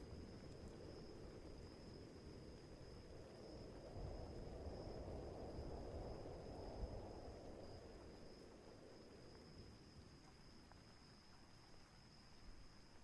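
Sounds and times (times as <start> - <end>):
low storm rumble: 0.0 - 10.0.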